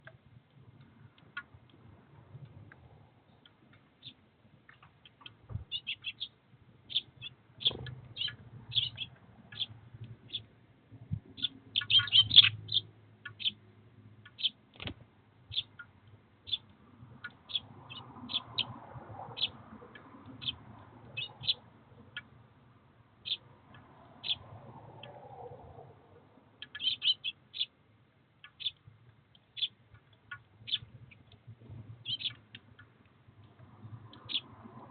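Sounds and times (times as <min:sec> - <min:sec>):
sparrows chirping: 0:03.3 - 0:10.5, 0:11.2 - 0:14.7, 0:15.4 - 0:22.4, 0:23.2 - 0:25.2, 0:26.6 - 0:27.8, 0:28.4 - 0:33.0, 0:34.1 - 0:34.9.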